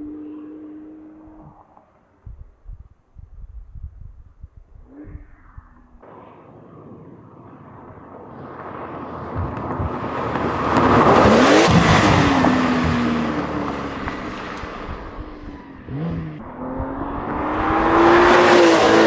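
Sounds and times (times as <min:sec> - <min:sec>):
sports car accelerating past: 0:07.7 - 0:19.0.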